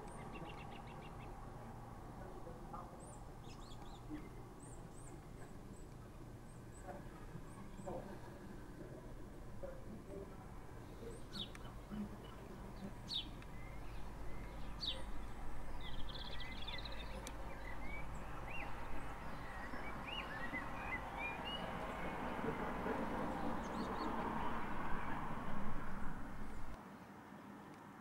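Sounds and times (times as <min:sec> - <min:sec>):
small birds calling: 0:00.0 - 0:01.5, 0:10.0 - 0:26.8.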